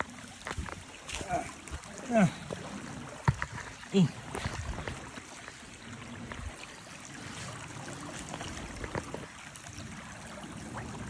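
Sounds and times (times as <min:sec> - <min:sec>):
flowing water: 0:00.0 - 0:11.0.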